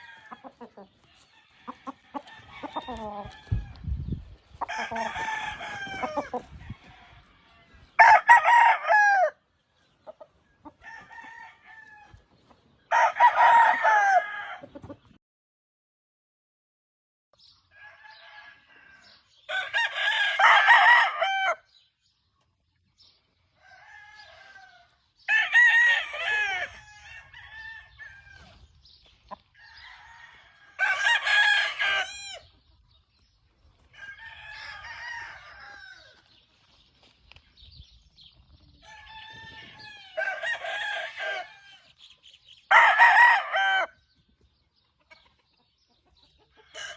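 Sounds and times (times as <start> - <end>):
rooster crowing loudly: 0.0 - 0.6, 1.4 - 3.8, 4.6 - 7.4, 8.0 - 9.4, 10.8 - 12.1, 12.9 - 14.6, 17.8 - 21.6, 23.6 - 28.6, 29.6 - 32.5, 34.0 - 36.2, 38.8 - 41.8, 42.7 - 44.0
distant roosters crowing: 0.0 - 4.0, 4.6 - 9.4, 10.6 - 12.3, 12.9 - 14.9, 17.7 - 21.7, 23.5 - 28.8, 29.5 - 32.6, 33.8 - 36.4, 38.7 - 42.0, 42.7 - 44.2, 46.5 - 46.9.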